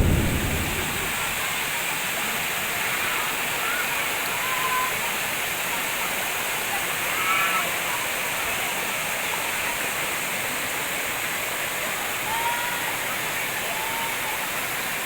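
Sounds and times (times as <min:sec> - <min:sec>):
waterfall rushing: 0:00.0 - 0:01.5.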